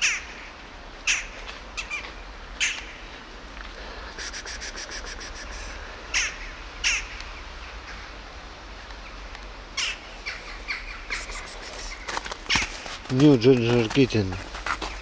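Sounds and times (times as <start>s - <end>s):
bird chattering: 4.2s - 7.1s, 9.8s - 12.1s
sharp bird calls: 4.2s - 8.2s, 9.8s - 12.7s.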